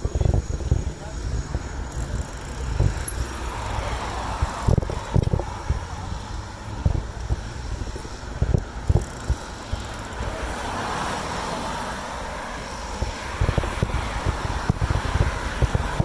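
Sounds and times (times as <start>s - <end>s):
wind buffeting microphone: 0.0s - 16.0s
car passing: 9.1s - 16.0s.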